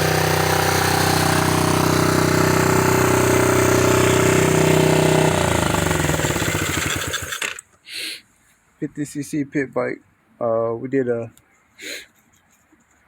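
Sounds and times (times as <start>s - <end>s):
small motorbike engine running: 0.0s - 7.6s.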